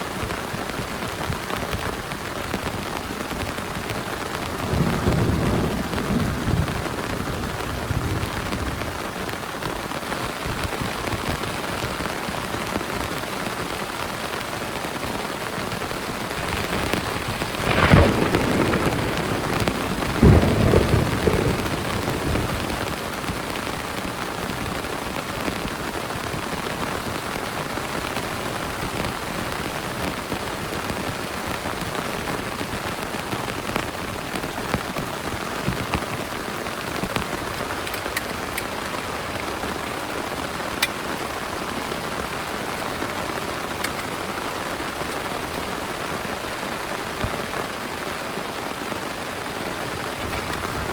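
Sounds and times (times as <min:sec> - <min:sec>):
heavy rain: 0:00.0 - 0:50.9
thunder: 0:04.5 - 0:08.9, 0:16.3 - 0:23.8, 0:50.0 - 0:50.9.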